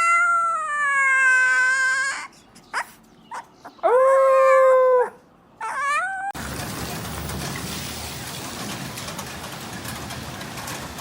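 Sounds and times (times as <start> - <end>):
dog howling: 0.0 - 2.3, 3.3 - 6.4.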